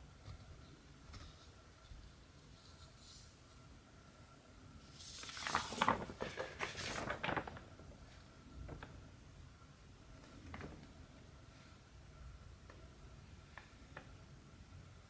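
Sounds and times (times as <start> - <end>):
rustling of fabric handling: 4.8 - 8.8.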